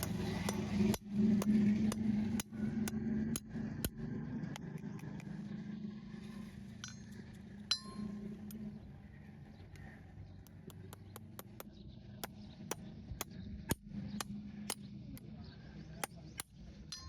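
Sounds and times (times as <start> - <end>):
steady low hum: 0.0 - 17.0
ringing metallic clink: 6.8 - 8.3.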